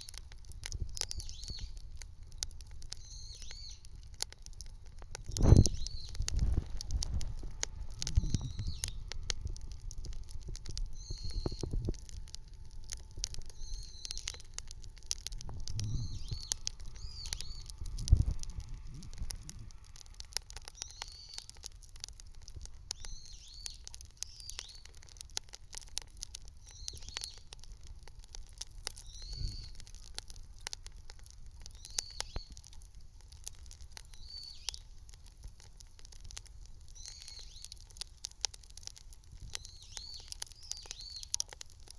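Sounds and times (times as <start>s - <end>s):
bonfire crackling and popping: 0.0s - 41.9s
bird calling: 10.9s - 11.7s, 13.5s - 14.5s, 15.8s - 17.8s, 29.0s - 29.8s.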